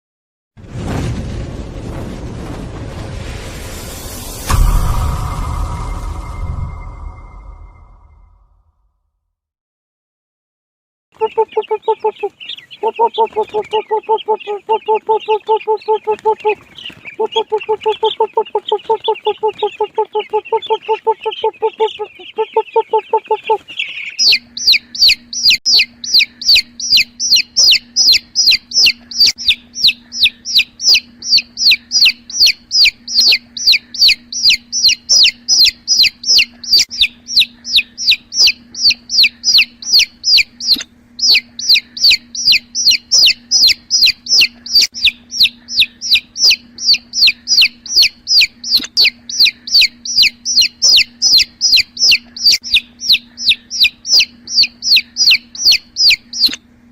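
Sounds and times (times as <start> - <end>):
low pulsing cluck-like call: 11.2 - 16.6, 17.2 - 56.6
chick peeping loudly: 11.2 - 56.6
faint steady hum: 17.1 - 56.9.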